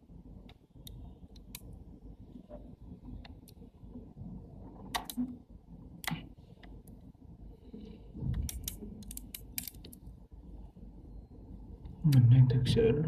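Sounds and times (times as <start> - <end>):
lens parts clicking: 8.4 - 10.0.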